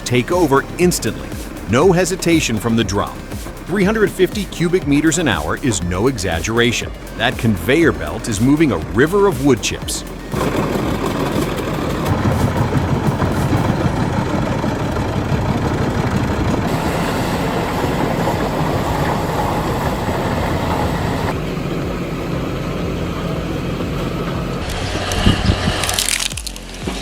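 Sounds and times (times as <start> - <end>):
wood chipper engine drone: 0.0 - 27.0
wood being chipped: 7.3 - 14.4, 24.6 - 27.0.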